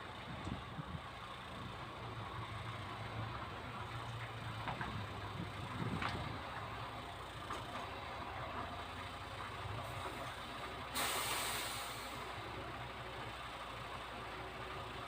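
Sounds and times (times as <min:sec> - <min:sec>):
diesel engine idling: 0:00.0 - 0:15.0
air brake hiss: 0:10.9 - 0:12.3.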